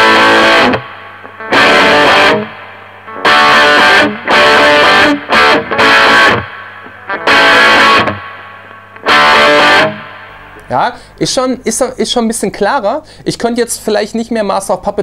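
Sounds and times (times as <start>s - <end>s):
distorted electric guitar chords: 0.0s - 12.0s
faint amplifier hum: 0.0s - 15.0s.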